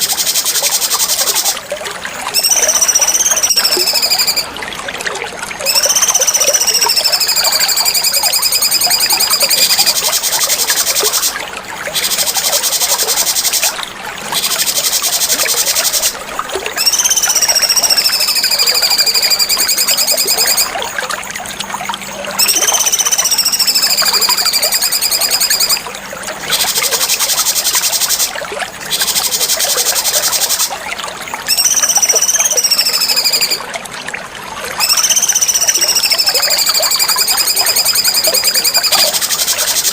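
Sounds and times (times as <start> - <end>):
bird whistles sliding down: 2.4 - 4.5, 5.6 - 11.3, 16.8 - 20.7, 22.4 - 25.8, 31.5 - 33.6, 34.8 - 39.9
rapid high-pitched bird trilling: 2.4 - 4.5, 5.6 - 13.8, 16.8 - 20.8, 22.4 - 25.8, 28.9 - 30.8, 31.5 - 33.6, 34.8 - 39.9.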